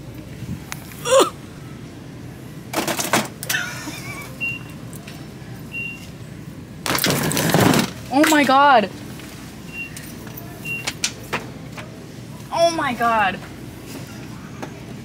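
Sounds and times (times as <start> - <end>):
store background: 0.0 - 15.0
short faint beeps: 4.4 - 4.8, 5.7 - 6.1, 9.7 - 10.9.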